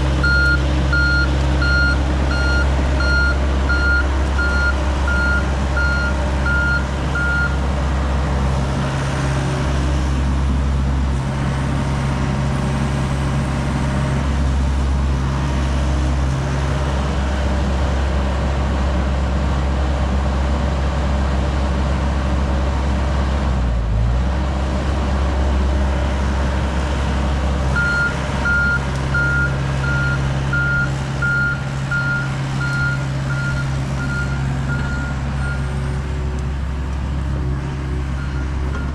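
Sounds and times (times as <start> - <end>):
excavator diesel engine running: 0.0 - 38.9
travel alarm beeps: 0.2 - 7.6.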